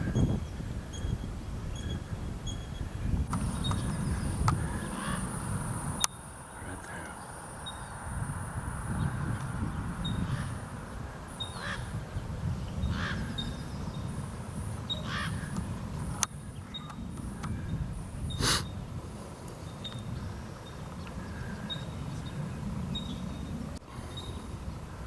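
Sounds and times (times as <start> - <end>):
small bird chirping: 0.1 - 5.3, 11.3 - 18.8, 19.4 - 24.9
crows cawing: 4.6 - 5.3, 10.2 - 10.6, 11.5 - 12.0, 12.9 - 13.4, 15.0 - 15.6.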